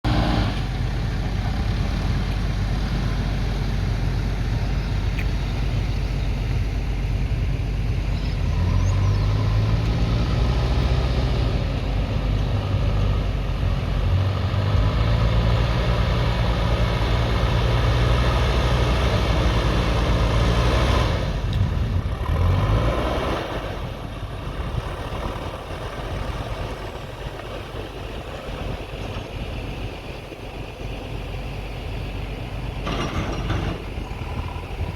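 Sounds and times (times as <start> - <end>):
backhoe diesel engine revving: 0.0 - 34.9.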